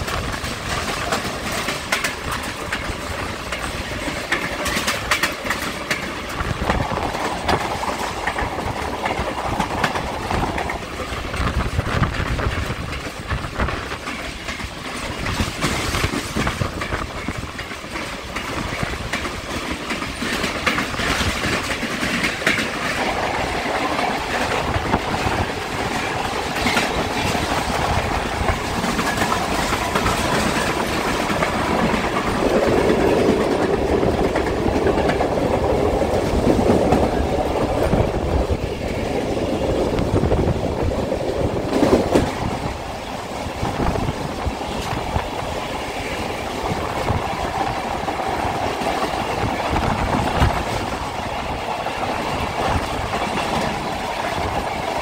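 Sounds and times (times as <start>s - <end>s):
wheel clicks and clacks: 0.0s - 38.0s
steel wheels rumbling on rails: 0.0s - 55.0s.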